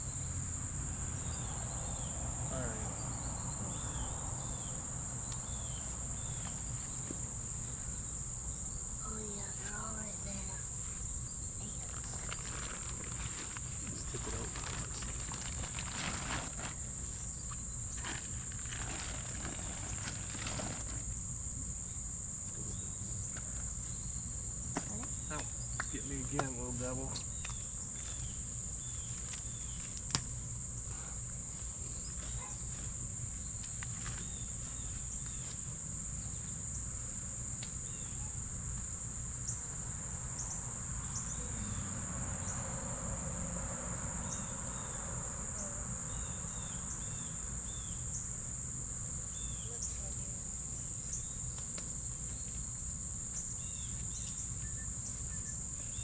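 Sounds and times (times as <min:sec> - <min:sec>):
insects chirring: 0:00.0 - 0:56.0
low outdoor rumble: 0:08.7 - 0:21.8.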